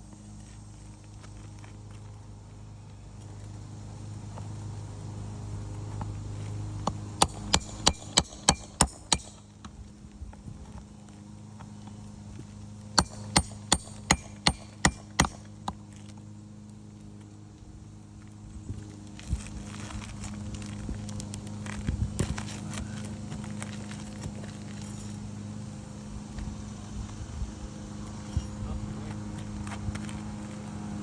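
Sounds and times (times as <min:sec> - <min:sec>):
hammer blows: 0:07.2 - 0:09.5, 0:13.0 - 0:15.5.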